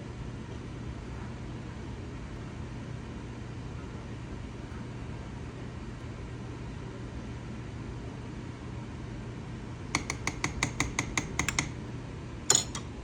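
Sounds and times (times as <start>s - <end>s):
steady low hum: 9.6s - 13.0s
utensil clinking on cooking pot: 10.0s - 11.7s, 12.5s - 13.0s
metal clatter: 12.5s - 12.9s.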